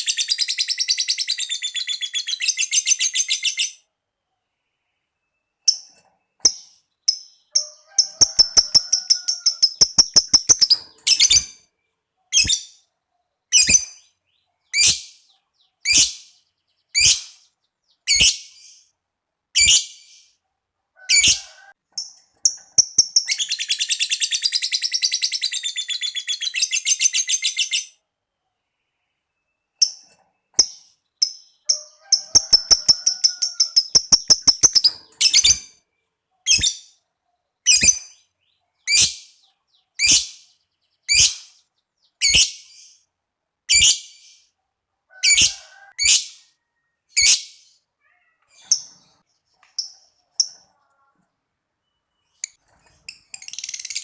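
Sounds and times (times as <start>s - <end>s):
lovebird chattering trills: 5.7s - 11.6s, 30.6s - 35.7s, 52.4s - 54.0s
lovebird shrill squeaks: 7.6s - 11.6s.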